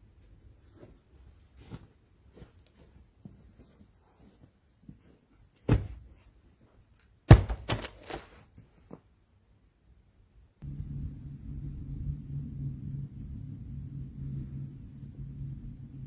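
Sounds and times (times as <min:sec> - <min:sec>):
heavy thud: 0:05.7 - 0:06.1, 0:07.3 - 0:08.0.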